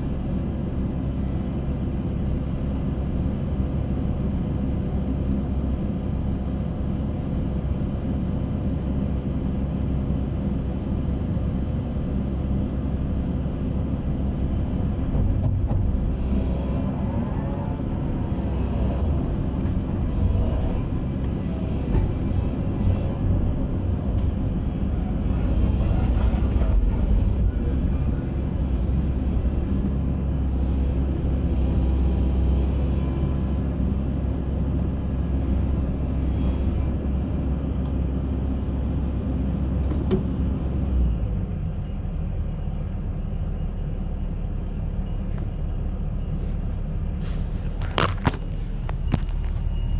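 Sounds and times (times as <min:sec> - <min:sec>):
concrete mixer engine rumbling: 0:14.0 - 0:39.4, 0:40.7 - 0:49.9.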